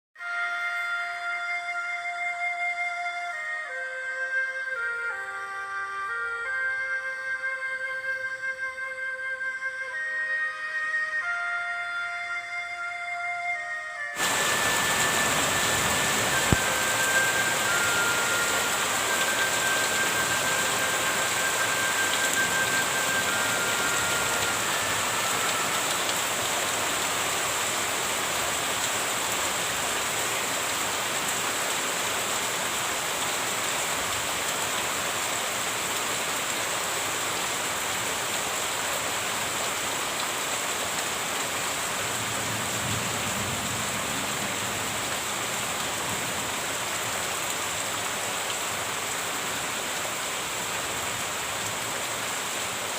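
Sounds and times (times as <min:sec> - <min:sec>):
steady rain falling: 0:00.2 - 0:12.2, 0:13.9 - 0:52.9
thin high whistling tones: 0:12.3 - 0:26.5.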